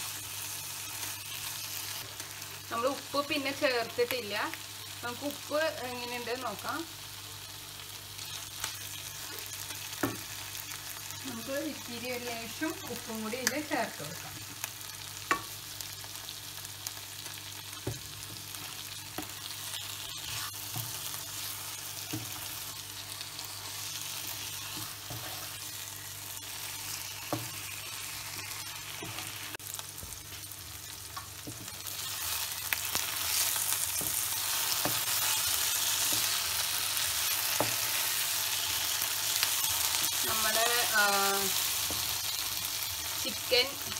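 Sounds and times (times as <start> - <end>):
chicken sizzling in oil: 0.0 - 43.9.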